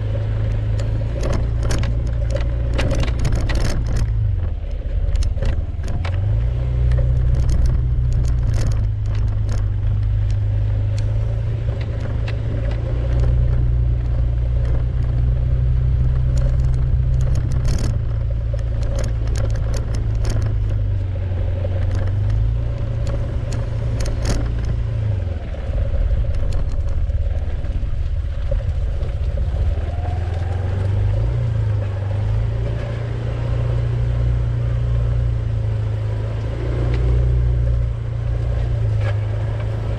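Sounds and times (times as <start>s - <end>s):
vehicle engine and road rumble: 0.0s - 39.9s
sharp knocks and rattles: 0.4s - 24.9s.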